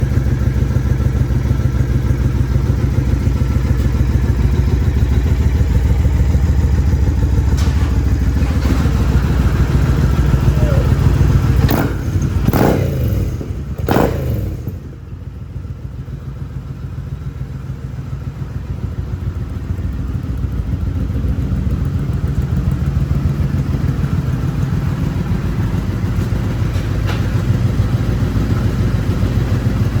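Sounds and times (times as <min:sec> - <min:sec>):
motorcycle engine idling: 0:00.0 - 0:30.0.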